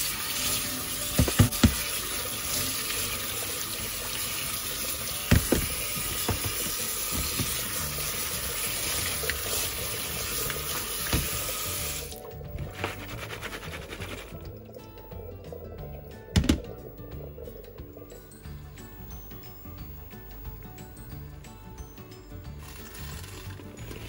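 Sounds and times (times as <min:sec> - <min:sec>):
tap water running into colander: 0:00.0 - 0:19.4, 0:22.6 - 0:24.0
colander knocks: 0:01.1 - 0:02.0, 0:05.2 - 0:07.8, 0:11.0 - 0:11.5, 0:16.3 - 0:16.8.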